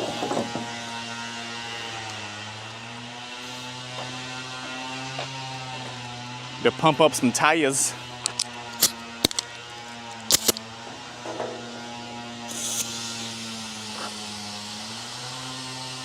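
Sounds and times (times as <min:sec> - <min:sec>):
air compressor humming: 0:00.0 - 0:06.8, 0:07.7 - 0:16.0
air hissing: 0:10.3 - 0:10.6, 0:12.5 - 0:14.2
sharp clicks: 0:10.3 - 0:10.6.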